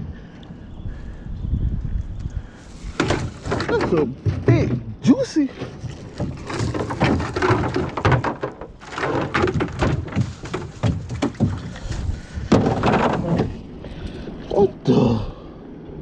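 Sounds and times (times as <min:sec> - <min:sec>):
rustling clatter: 0:02.7 - 0:14.2
knocks and thumps on canoe hull: 0:02.8 - 0:13.7.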